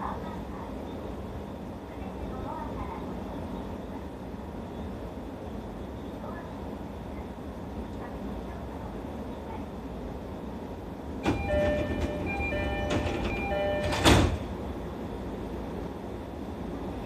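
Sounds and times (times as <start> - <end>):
stopped train humming: 0.0 - 17.0
train door chime: 11.2 - 14.6
train doors shutting with a thump: 11.2 - 15.0.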